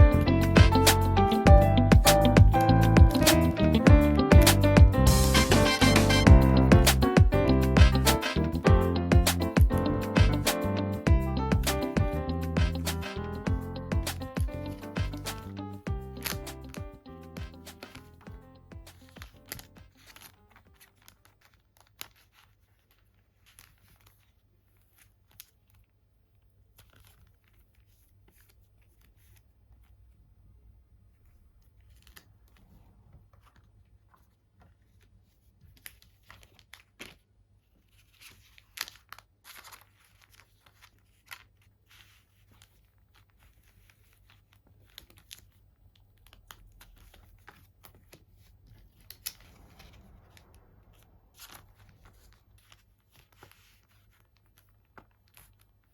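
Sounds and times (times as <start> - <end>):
plastic packaging crinkling: 14.1 - 25.9, 35.7 - 45.6.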